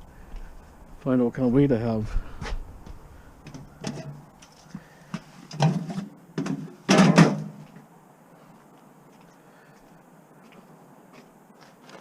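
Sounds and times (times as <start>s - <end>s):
scrap metal knocks and clunks: 3.4s - 4.2s, 5.5s - 7.6s.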